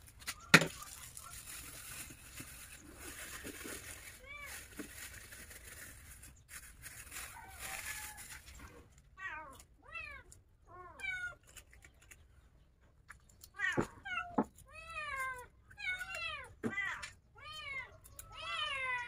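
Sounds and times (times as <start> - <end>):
cat meowing: 13.6 - 19.0.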